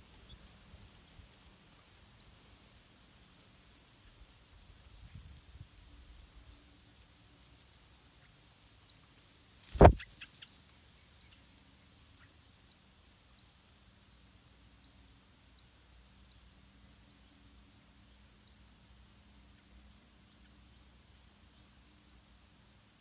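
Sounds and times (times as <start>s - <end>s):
nestlings begging chirps: 0.1s - 1.3s, 2.1s - 2.6s, 8.2s - 18.8s, 19.4s - 22.4s
loud thump: 9.8s - 10.0s.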